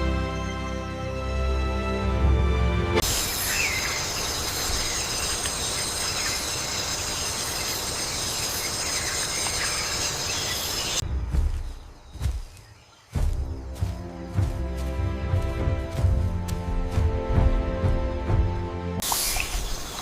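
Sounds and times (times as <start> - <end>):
steady jungle hiss: 3.0 - 20.0.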